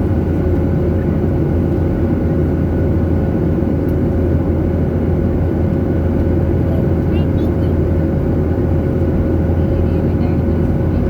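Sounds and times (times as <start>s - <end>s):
jet engine noise: 0.0s - 11.0s.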